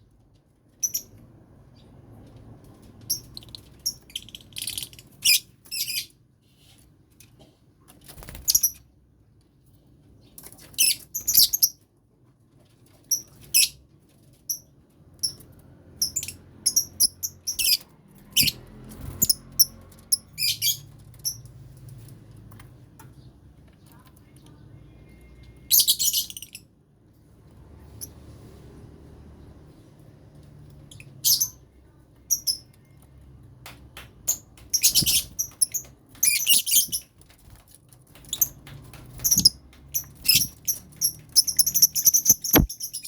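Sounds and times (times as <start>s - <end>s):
lovebirds chirping: 0.8s - 1.9s, 10.2s - 11.8s, 16.0s - 21.5s, 24.4s - 26.7s, 34.3s - 37.2s, 38.1s - 43.0s.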